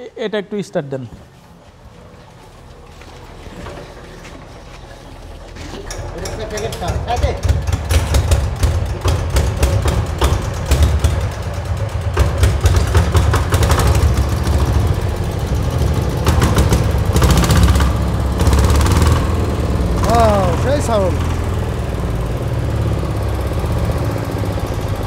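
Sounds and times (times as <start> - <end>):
diesel engine running: 2.5 - 25.0.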